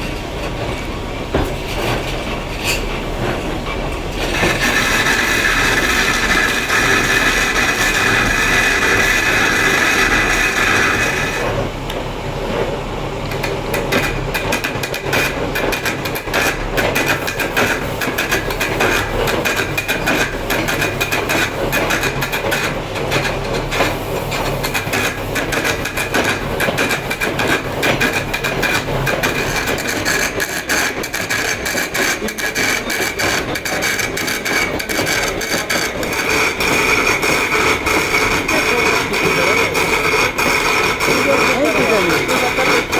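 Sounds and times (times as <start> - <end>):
hand tools tapping and scraping stone: 4.2 - 11.5, 13.3 - 42.9
power tool whine: 4.2 - 11.6, 31.0 - 42.9.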